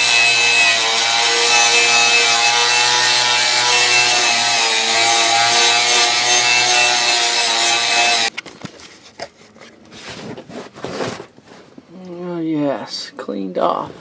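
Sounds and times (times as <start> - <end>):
power tool whining: 0.0 - 8.3.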